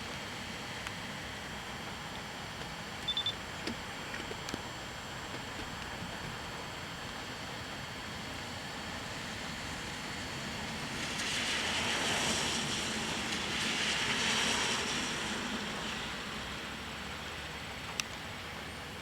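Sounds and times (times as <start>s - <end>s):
tyres hissing on wet road: 5.8s - 19.0s.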